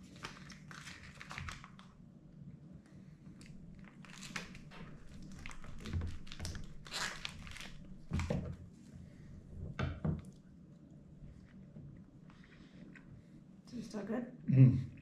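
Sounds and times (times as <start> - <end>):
plastic wrap crinkling: 0.0 - 1.9, 3.4 - 8.4.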